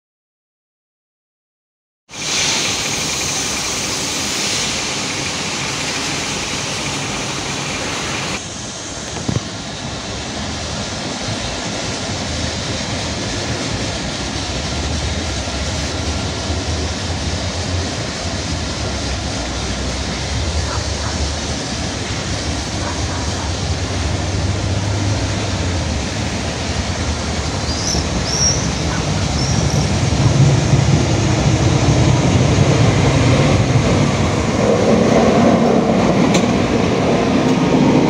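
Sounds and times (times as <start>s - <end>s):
outdoor hiss: 2.1s - 31.5s
diesel train rumble: 2.1s - 38.0s.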